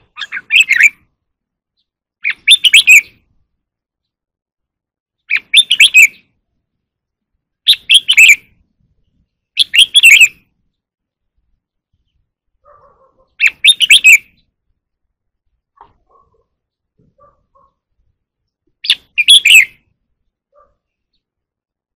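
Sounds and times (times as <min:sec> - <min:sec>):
bird singing rapid notes: 0:00.0 - 0:03.4, 0:05.1 - 0:06.4, 0:07.5 - 0:14.8, 0:15.8 - 0:21.4.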